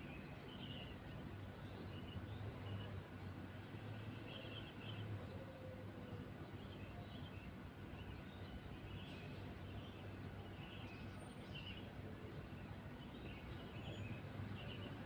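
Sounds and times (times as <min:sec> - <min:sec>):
small birds chirping: 0:06.4 - 0:15.0.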